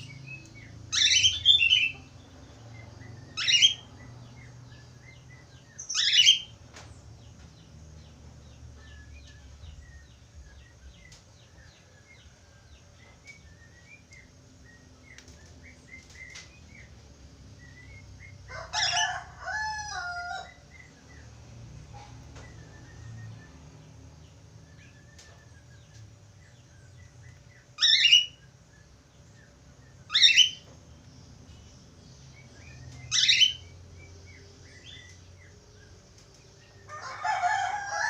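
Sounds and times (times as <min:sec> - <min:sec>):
soft chirping chatter: 0:00.0 - 0:38.0
budgerigars calling: 0:33.1 - 0:33.6.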